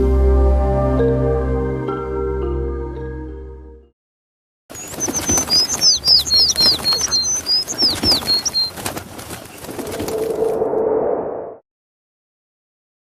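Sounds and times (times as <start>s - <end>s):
small bird chirping: 4.7s - 9.8s.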